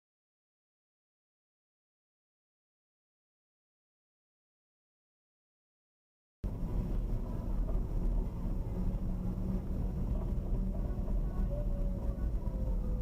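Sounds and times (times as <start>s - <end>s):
car engine and road noise: 6.4s - 13.0s.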